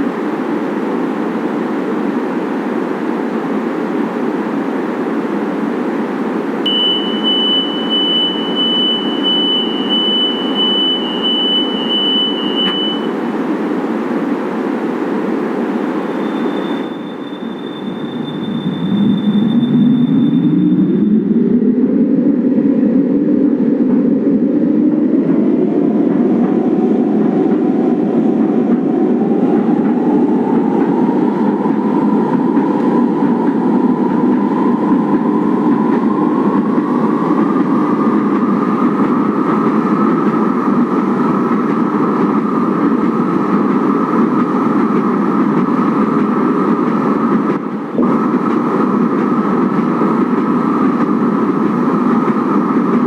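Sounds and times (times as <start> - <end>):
train motor whine: 6.2 - 21.4.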